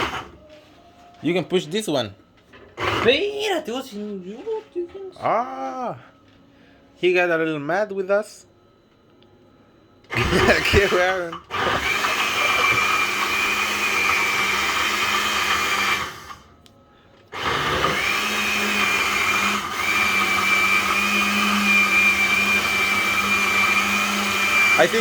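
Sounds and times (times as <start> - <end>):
electric blender motor whine: 0.0 - 0.6, 2.5 - 3.6, 10.1 - 16.6, 17.3 - 25.0.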